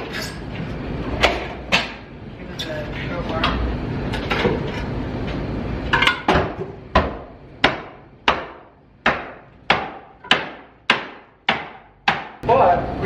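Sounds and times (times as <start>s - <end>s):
hammer striking wooden plank: 6.3s - 12.4s.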